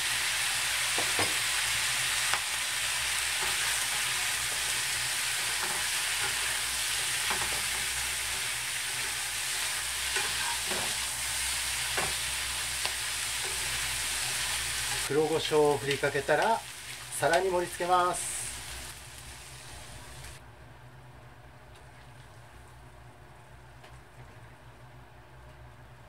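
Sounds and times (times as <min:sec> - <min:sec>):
food sizzling in a frying pan: 0:00.0 - 0:20.4.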